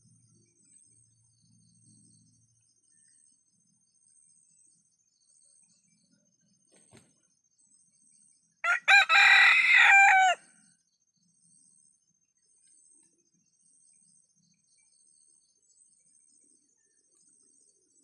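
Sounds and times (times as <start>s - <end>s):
rooster crowing: 8.6s - 10.5s.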